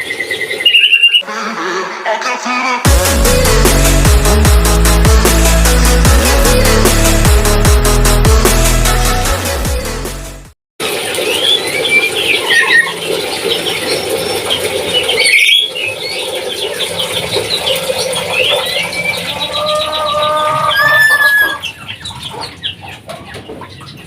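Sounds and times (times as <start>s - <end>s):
parrot squealing and chirping: 0.6s - 1.2s, 11.4s - 13.0s, 15.0s - 15.9s, 18.3s - 22.8s.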